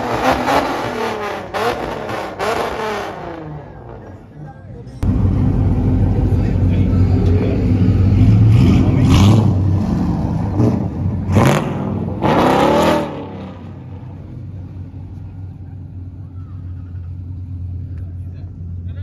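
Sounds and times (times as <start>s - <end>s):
vehicle engine revving: 0.0s - 4.3s, 5.0s - 15.4s.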